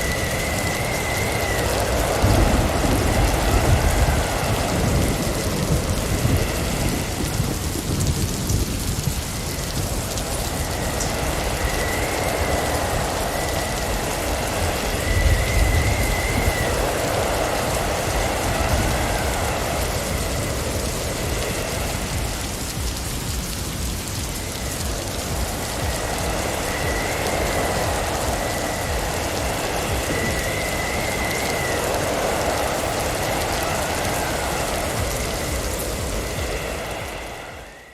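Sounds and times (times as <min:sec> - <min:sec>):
faint wind whistle: 0:00.0 - 0:37.9
wind gusts: 0:00.0 - 0:37.9
wind-driven snow hissing: 0:00.0 - 0:37.9.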